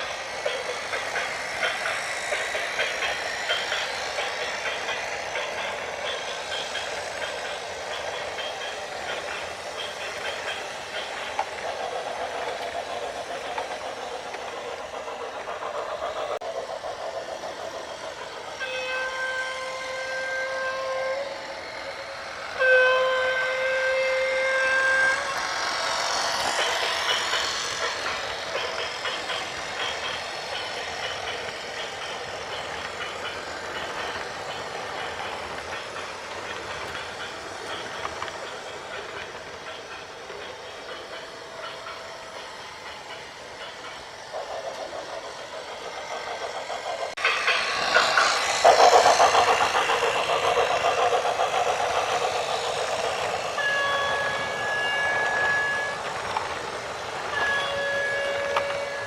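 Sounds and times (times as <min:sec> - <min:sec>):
horn long blasts: 0:18.6 - 0:21.5, 0:22.6 - 0:25.3.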